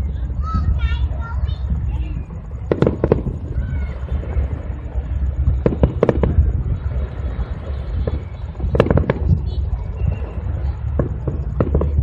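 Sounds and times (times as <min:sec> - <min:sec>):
fireworks rumbling bursts: 0:00.0 - 0:12.0
fireworks sharp cracks: 0:02.6 - 0:12.0.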